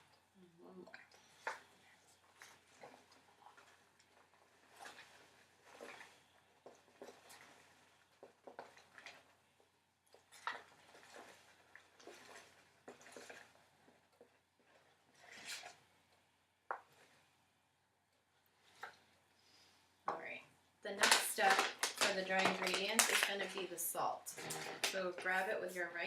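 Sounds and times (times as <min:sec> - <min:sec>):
measuring cup scraping flour: 0:10.2 - 0:15.8.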